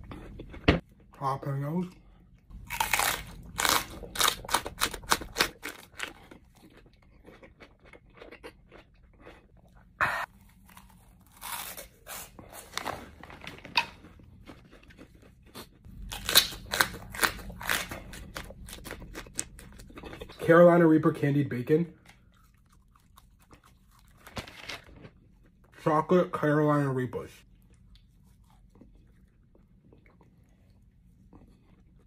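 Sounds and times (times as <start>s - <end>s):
crunching raw peppers: 2.5s - 20.4s.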